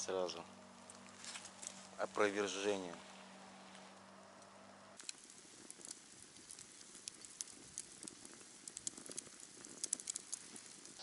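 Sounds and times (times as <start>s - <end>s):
low steady hum: 0.0s - 5.8s
raindrops tapping: 5.0s - 11.0s.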